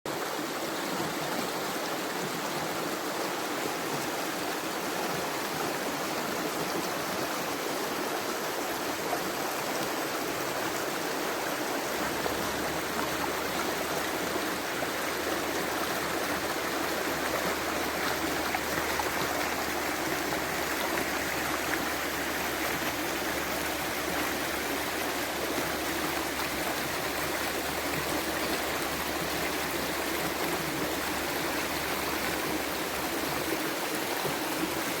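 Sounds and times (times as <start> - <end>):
stream flowing water: 0.1 - 35.0.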